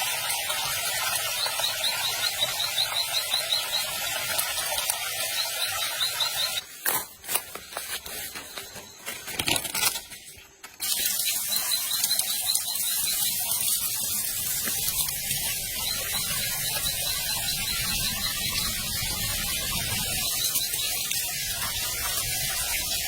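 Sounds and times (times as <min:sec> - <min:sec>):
high chirps: 0:00.6 - 0:06.6, 0:10.8 - 0:22.6.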